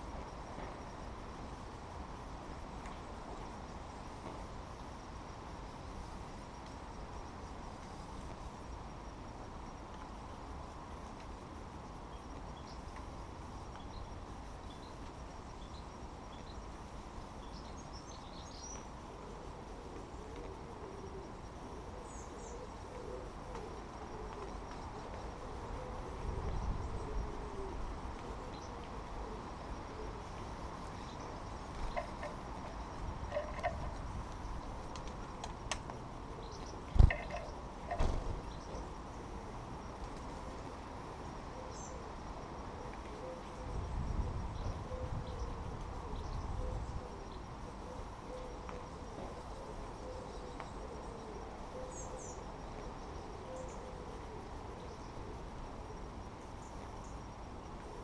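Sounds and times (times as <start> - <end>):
background hiss and rumble: 0.0 - 58.0
small birds chirping: 12.0 - 19.1, 30.3 - 39.3.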